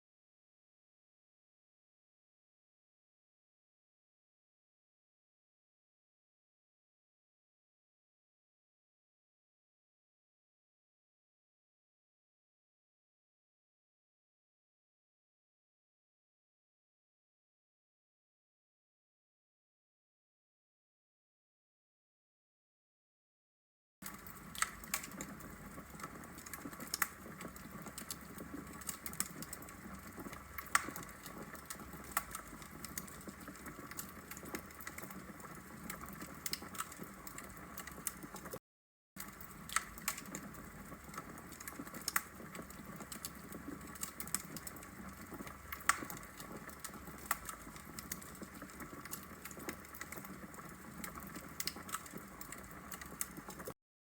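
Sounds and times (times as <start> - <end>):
logs crackling in fireplace: 24.0 - 38.6, 39.2 - 53.8.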